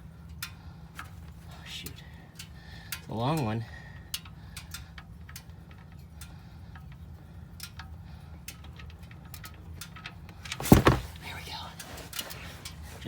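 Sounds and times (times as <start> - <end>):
light ticks: 0.2 - 10.4.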